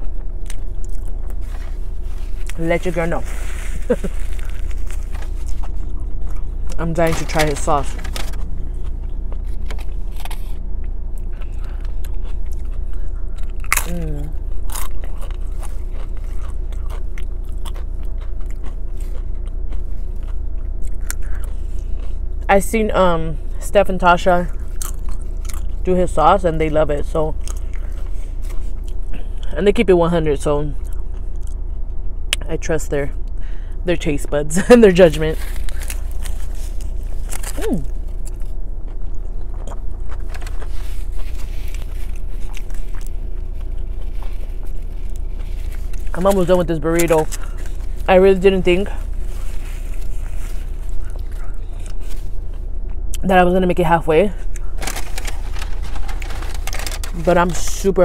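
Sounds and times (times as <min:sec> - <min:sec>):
person chewing food: 0:00.0 - 0:02.6, 0:03.2 - 0:06.9, 0:08.0 - 0:22.5, 0:24.5 - 0:25.8, 0:27.4 - 0:29.4, 0:35.4 - 0:48.1, 0:48.8 - 0:53.2, 0:54.4 - 0:57.2
crunching chips: 0:00.0 - 0:22.4, 0:24.5 - 0:25.9, 0:35.0 - 0:53.0, 0:54.4 - 0:58.0
steady low hum: 0:00.0 - 0:58.0.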